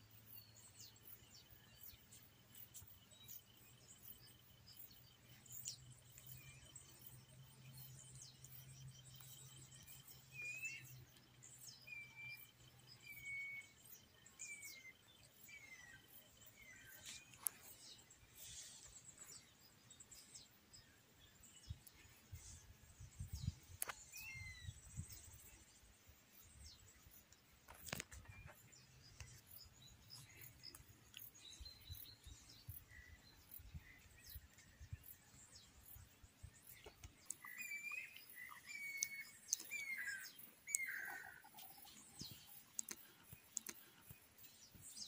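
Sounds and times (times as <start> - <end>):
bird chirps and whistled calls: 37.3 - 42.4.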